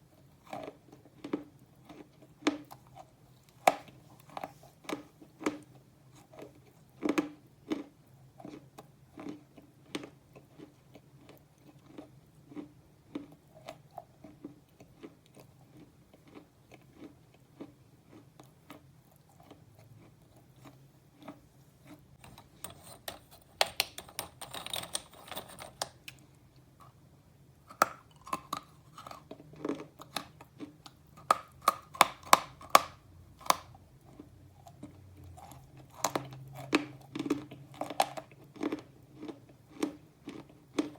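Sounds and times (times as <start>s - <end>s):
person chewing crunchy food: 0.1s - 27.0s, 27.6s - 40.9s.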